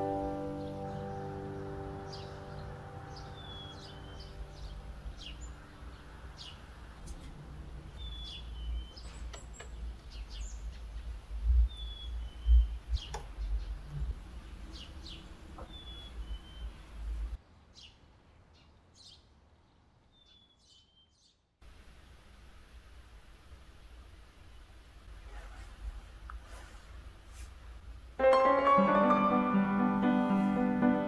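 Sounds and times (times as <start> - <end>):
small birds chirping: 0.0 - 21.5.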